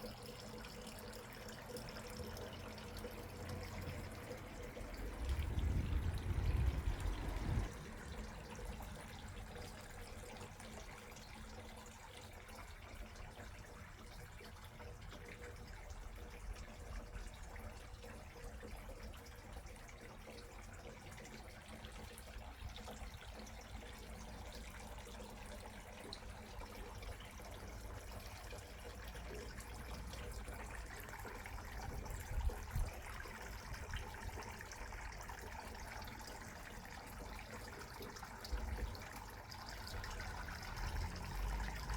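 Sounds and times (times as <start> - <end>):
faint trickling water: 0.0 - 41.9
steady low rumble: 4.7 - 8.2.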